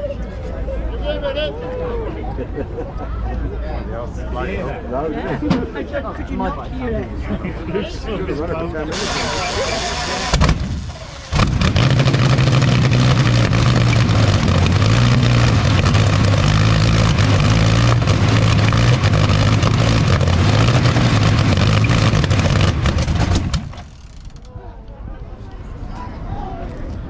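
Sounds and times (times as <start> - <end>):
petrol engine running with varying revs: 8.9 - 24.2.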